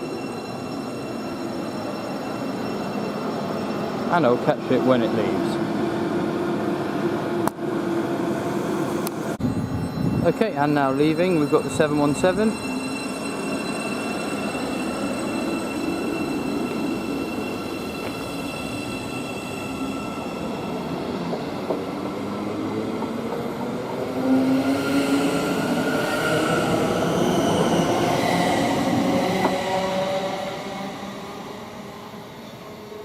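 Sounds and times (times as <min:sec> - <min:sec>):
train traction motors whining: 0:11.0 - 0:21.9.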